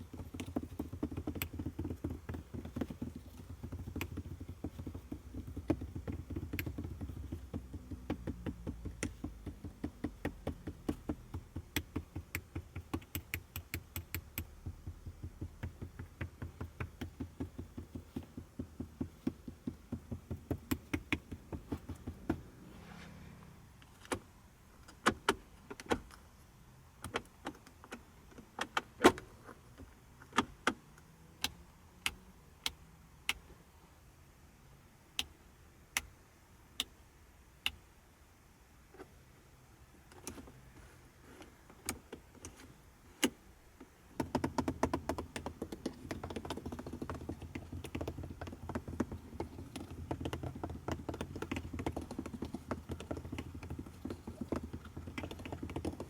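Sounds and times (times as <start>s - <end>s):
fast mechanical clicking: 0.0s - 22.4s, 44.2s - 56.0s.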